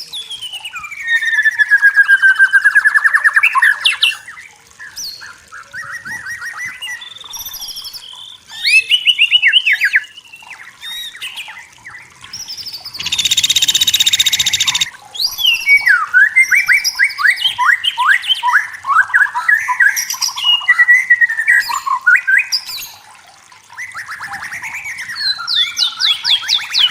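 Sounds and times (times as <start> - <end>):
bird singing whistles and trills: 0.0 - 23.0, 23.7 - 26.9.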